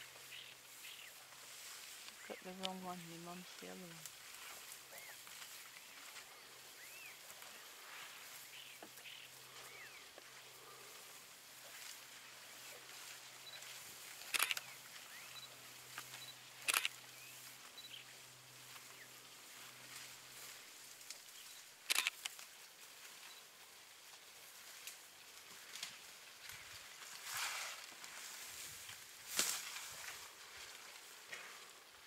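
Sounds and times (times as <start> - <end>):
faint chirps: 4.9 - 11.0, 13.4 - 19.2
camera shutters clicking: 14.3 - 14.7, 16.6 - 17.0, 21.9 - 22.3.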